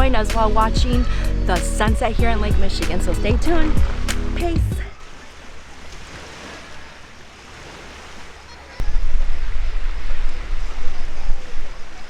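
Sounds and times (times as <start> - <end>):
surf washing onto beach: 4.9 - 12.0.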